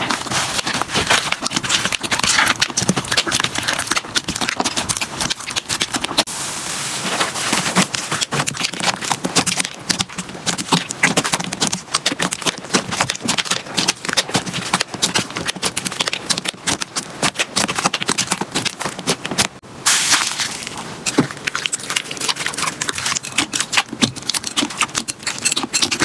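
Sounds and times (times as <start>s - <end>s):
slime squeezed by hand: 19.9s - 20.9s.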